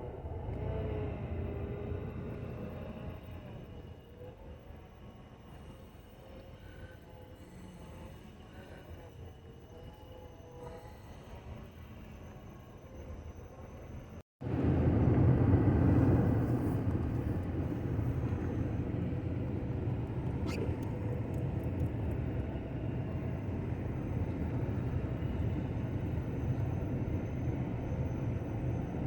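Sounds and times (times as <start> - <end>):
vehicle driving rumble: 0.0 - 4.1, 14.4 - 29.0.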